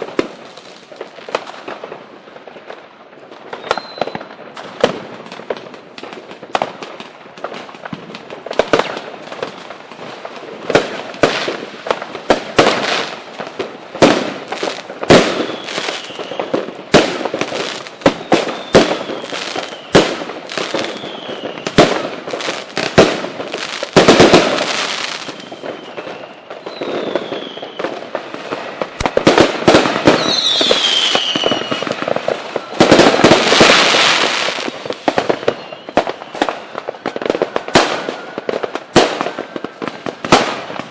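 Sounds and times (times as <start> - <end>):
firework bangs: 0.0 - 40.9
firework crackling: 0.0 - 40.9
firework whistles: 3.5 - 5.6, 14.0 - 40.9.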